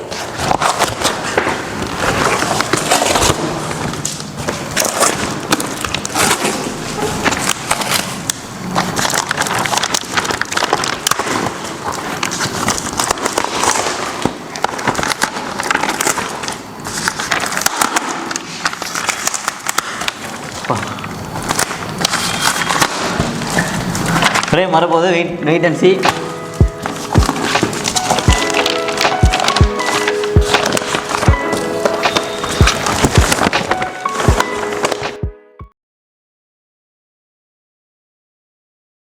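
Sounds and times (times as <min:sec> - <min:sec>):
plastic and cardboard crinkling: 0:00.0 - 0:24.8, 0:25.6 - 0:35.2
packaging being torn open: 0:00.1 - 0:24.6, 0:26.0 - 0:35.2.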